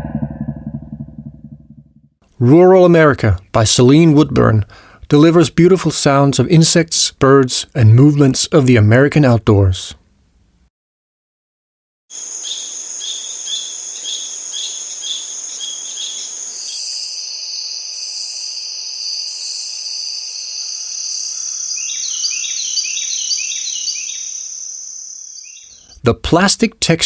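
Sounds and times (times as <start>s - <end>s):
high insect drone: 12.1s - 25.6s
insect chirping: 12.1s - 25.9s.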